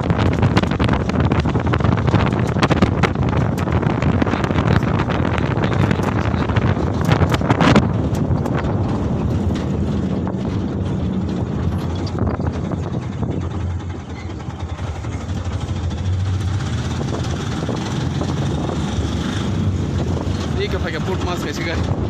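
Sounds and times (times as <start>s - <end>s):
road and wind noise: 0.0s - 22.0s
truck engine drone: 0.0s - 22.0s.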